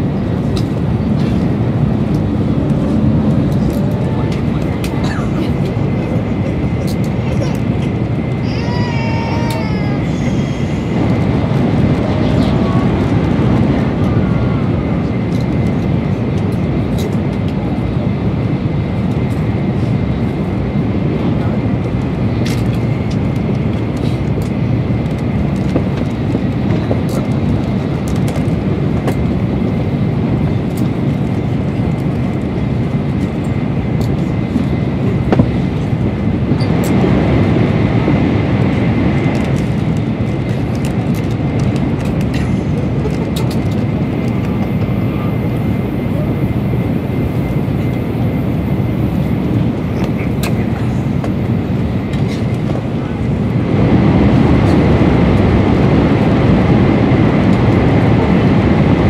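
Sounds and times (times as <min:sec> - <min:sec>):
train rumble and rush: 0:00.0 - 0:59.0.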